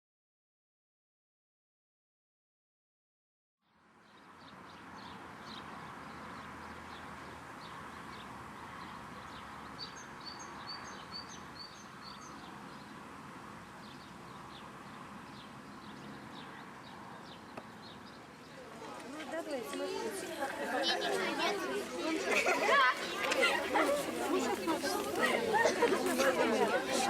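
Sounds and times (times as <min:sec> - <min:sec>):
small birds chirping: 0:04.0 - 0:18.7.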